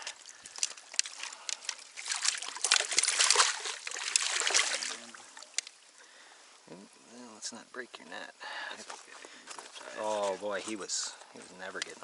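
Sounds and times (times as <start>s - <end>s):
fish thrashing and splashing water: 0.0s - 5.9s.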